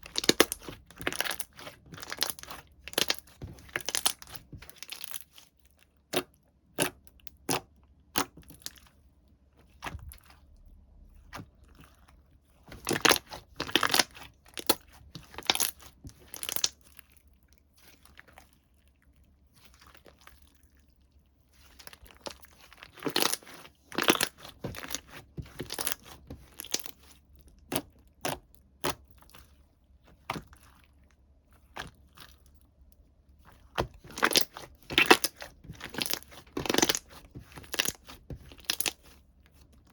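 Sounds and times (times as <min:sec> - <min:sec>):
crinkling and crunching packaging: 0:00.0 - 0:05.8, 0:09.9 - 0:28.0, 0:33.4 - 0:39.9.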